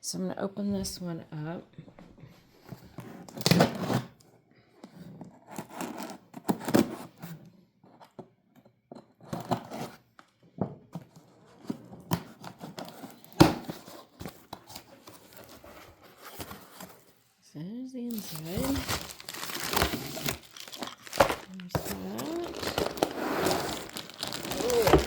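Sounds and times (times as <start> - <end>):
cardboard tearing and rustling: 5.5 - 7.1, 12.2 - 17.1, 18.1 - 25.0.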